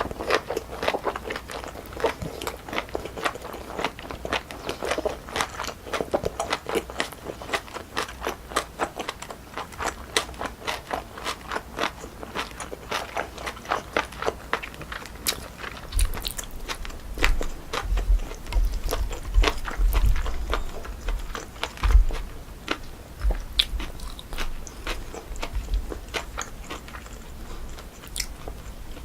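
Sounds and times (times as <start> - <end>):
wet crunchy chewing: 0.0 - 29.0
low thumps: 17.2 - 22.4.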